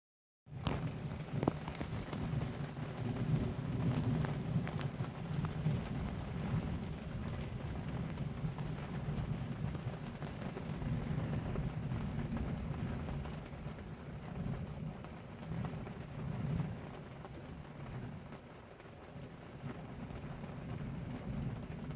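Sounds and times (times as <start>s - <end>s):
heavy rain downpour: 0.5s - 21.9s
raindrops tapping surfaces: 0.5s - 21.9s
low thunder rumble: 0.8s - 21.9s.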